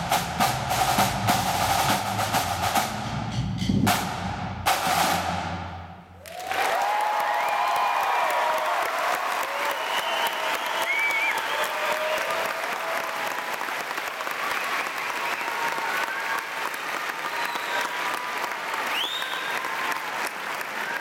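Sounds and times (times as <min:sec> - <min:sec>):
audience applauding: 0:06.2 - 0:21.0
rising whistle: 0:09.6 - 0:12.3, 0:18.9 - 0:19.7.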